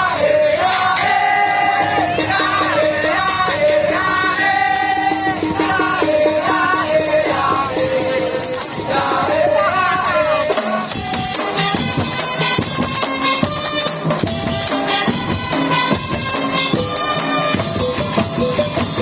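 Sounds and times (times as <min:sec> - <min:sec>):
parade music melody: 0:00.0 - 0:19.0
steady percussion beat: 0:00.0 - 0:19.0.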